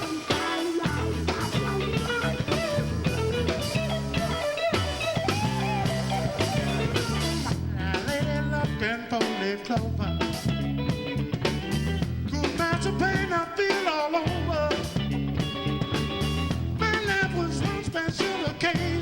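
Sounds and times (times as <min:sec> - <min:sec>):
guitar lead with bent notes: 0:00.0 - 0:19.0
live rock band playing: 0:00.0 - 0:19.0.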